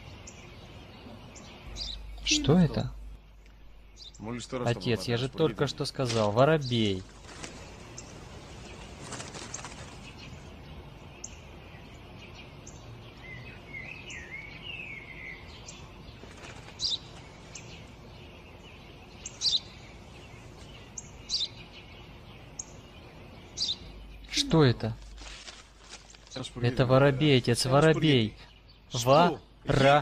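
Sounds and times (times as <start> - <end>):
bird warbling call: 0.0 - 3.1
outdoor background hiss: 0.0 - 30.0
small birds chirping: 0.0 - 30.0.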